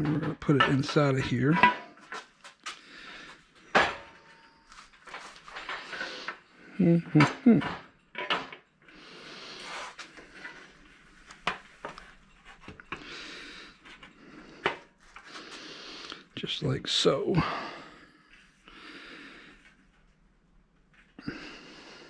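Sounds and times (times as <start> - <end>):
hard parts clinking and knocking: 0.0 - 2.3, 7.2 - 8.8
scraping and rubbing: 4.7 - 6.4, 9.4 - 12.9.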